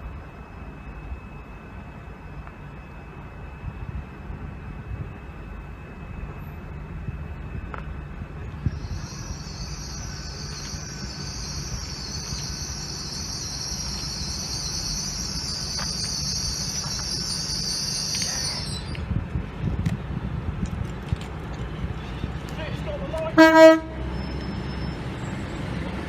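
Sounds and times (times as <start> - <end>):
train high-pitched hiss: 8.5 - 19.2
low rumble: 8.5 - 20.6.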